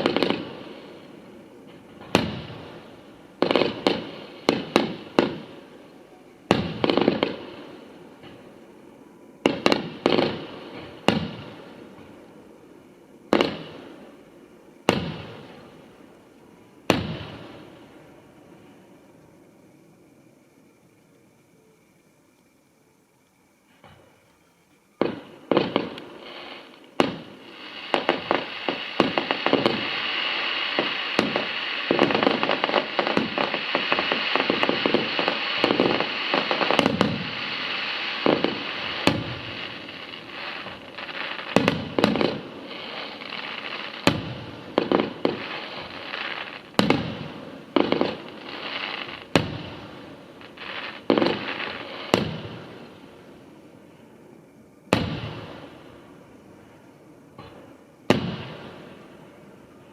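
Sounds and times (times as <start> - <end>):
firework crackling hiss: 0.0 - 59.9.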